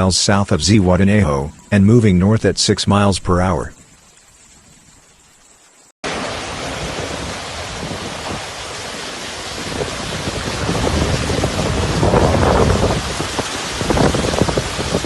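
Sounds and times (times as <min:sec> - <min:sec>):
heavy rain: 0:06.0 - 0:15.0.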